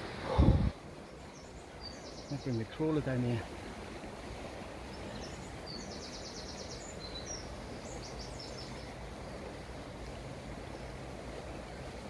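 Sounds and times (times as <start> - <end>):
outdoor background noise: 0.0 - 12.0
small bird chirping and trilling: 1.1 - 3.0, 4.9 - 9.0.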